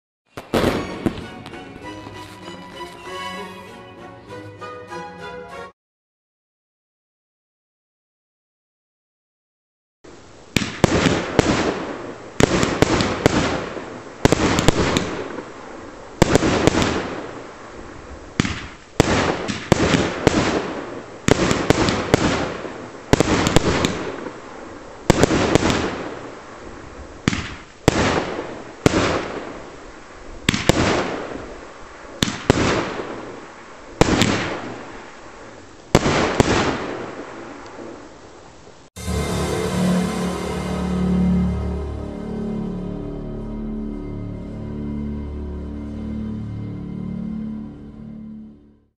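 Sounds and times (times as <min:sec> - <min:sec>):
firework bangs: 0:00.3 - 0:01.9, 0:10.5 - 0:38.1.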